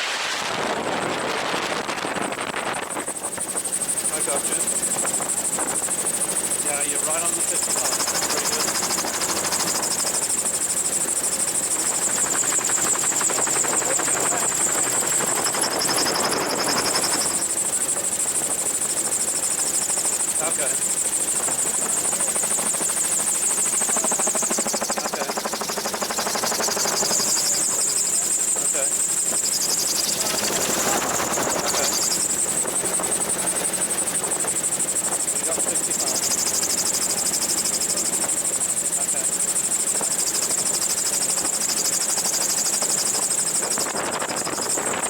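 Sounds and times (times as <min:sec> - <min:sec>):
wind rush: 0:00.0 - 0:03.8
steady high whine: 0:00.0 - 0:45.0
rotor beating: 0:00.5 - 0:45.0.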